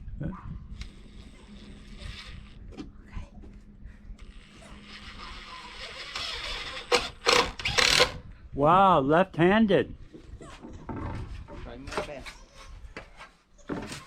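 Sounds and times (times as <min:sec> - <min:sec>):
power drill whirring: 0:04.2 - 0:08.2.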